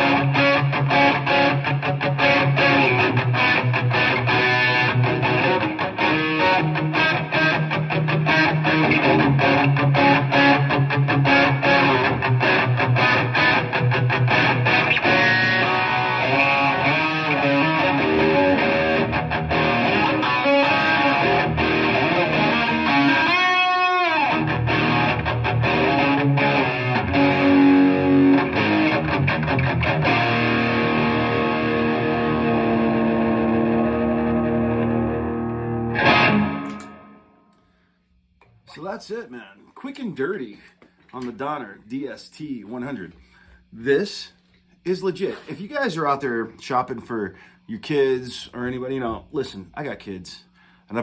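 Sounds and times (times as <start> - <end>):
distorted electric guitar: 0.0 - 37.4.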